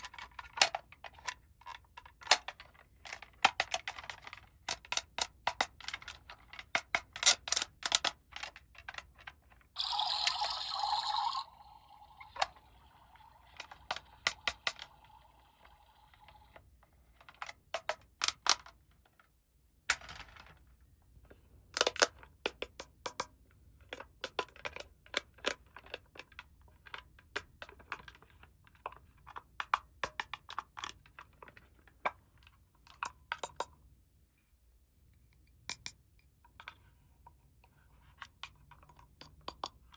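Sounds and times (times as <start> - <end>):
plastic toy pieces clicking: 0.0 - 11.4, 12.0 - 16.6.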